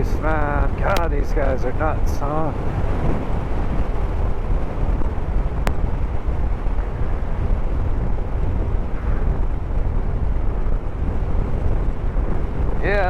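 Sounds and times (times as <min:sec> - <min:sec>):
motorcycle engine and road noise: 0:00.0 - 0:13.0
wind rush: 0:00.0 - 0:13.0
sharp click: 0:00.8 - 0:01.1.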